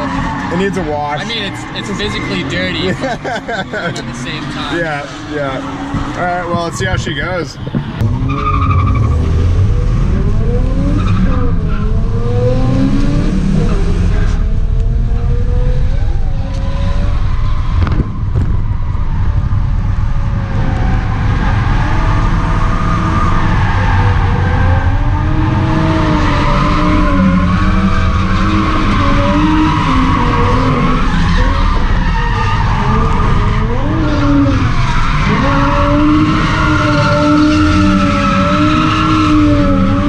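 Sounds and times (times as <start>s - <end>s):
tyres squealing and skidding: 0.0s - 9.8s, 10.4s - 12.3s, 20.4s - 40.0s
car engine revving: 0.0s - 40.0s.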